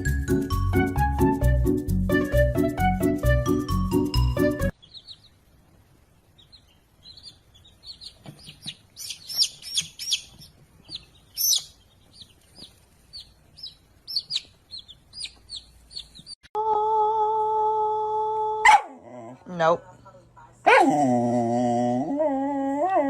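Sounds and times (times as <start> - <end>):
bird chirping: 4.7 - 16.4.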